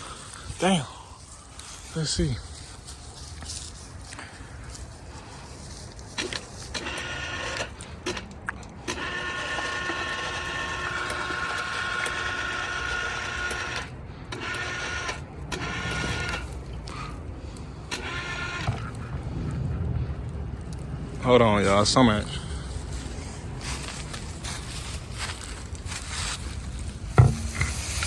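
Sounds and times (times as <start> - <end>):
lifting gear mechanical whine: 8.8 - 22.2, 26.8 - 28.0.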